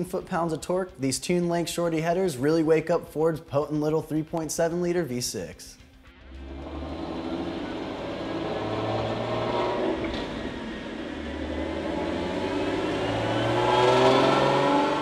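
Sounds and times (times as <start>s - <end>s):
car engine revving: 6.2s - 15.0s.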